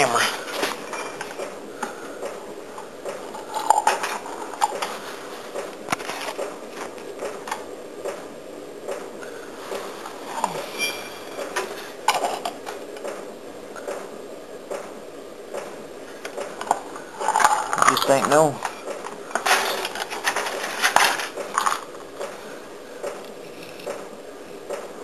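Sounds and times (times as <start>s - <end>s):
objects being handled: 2.7s - 7.6s, 9.6s - 13.2s, 16.2s - 24.0s.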